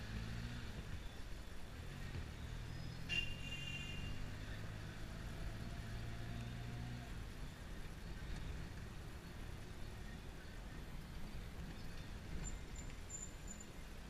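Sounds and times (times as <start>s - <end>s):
car engine droning: 0.0s - 10.2s.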